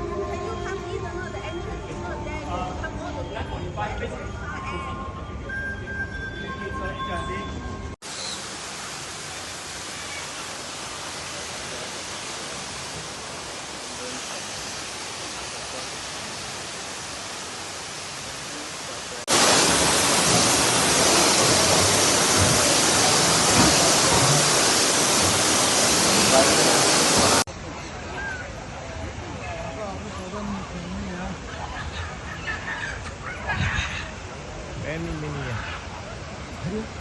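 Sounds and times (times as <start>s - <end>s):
falling water rushing: 8.0s - 30.0s.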